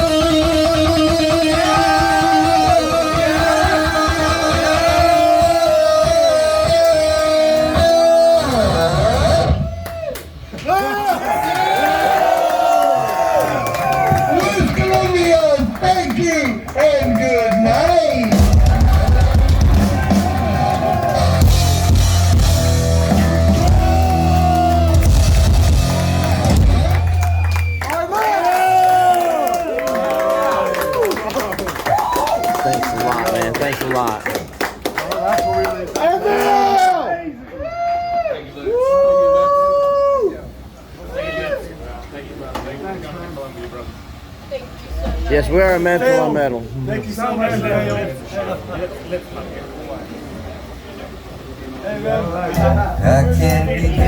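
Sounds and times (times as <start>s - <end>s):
electric guitar bending notes: 0.0s - 9.6s, 18.3s - 27.3s, 52.2s - 54.0s
heavy metal band playing: 0.0s - 9.6s, 18.2s - 27.2s, 52.5s - 54.0s
pounding drums: 18.1s - 27.2s
sustained high guitar tones: 52.2s - 54.0s.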